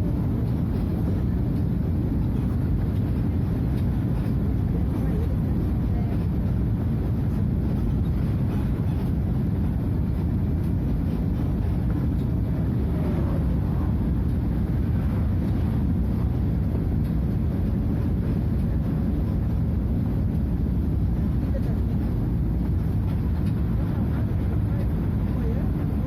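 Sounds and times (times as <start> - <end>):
bus diesel engine drone: 0.0 - 26.0.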